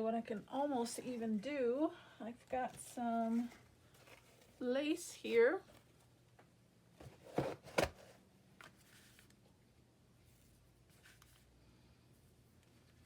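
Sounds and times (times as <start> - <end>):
paper materials rustling: 10.3 - 11.5.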